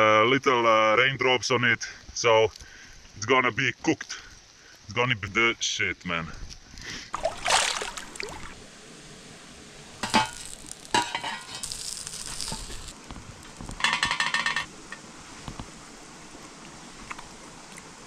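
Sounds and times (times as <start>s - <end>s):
fire crackling bursts: 6.8s - 17.5s
food sizzling: 7.1s - 15.9s.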